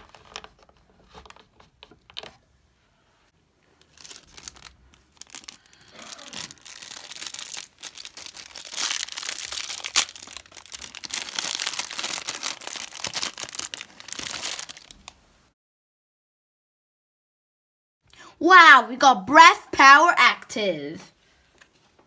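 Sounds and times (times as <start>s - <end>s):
plastic wrapper tearing and crinkling: 3.8s - 15.2s.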